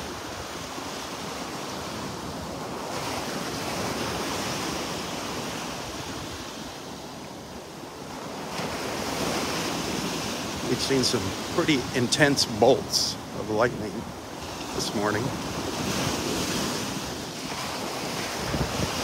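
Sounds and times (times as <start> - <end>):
wind buffeting microphone: 8.0 - 19.0.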